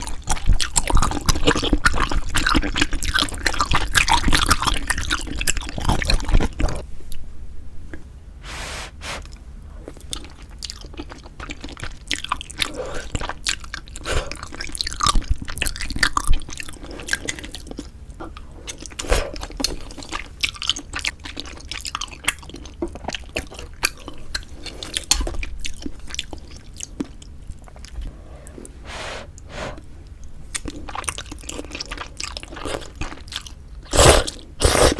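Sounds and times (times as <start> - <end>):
wet chewing: 9.9 - 29.9, 30.5 - 34.9.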